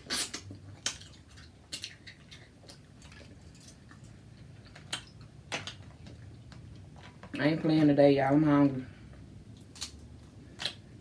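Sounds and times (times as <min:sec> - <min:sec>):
seafood eating clicks and crackles: 0:00.4 - 0:07.2.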